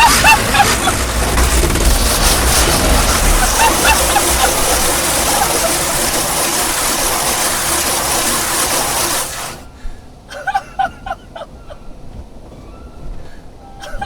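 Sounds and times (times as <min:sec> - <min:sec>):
spraying water hiss: 0:00.0 - 0:09.8.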